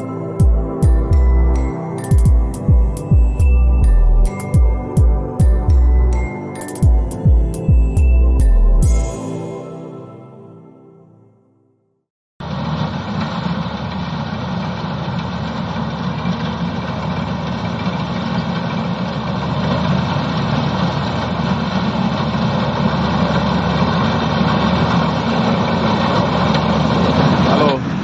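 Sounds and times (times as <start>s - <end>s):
combine harvester engine drone: 12.4s - 28.0s.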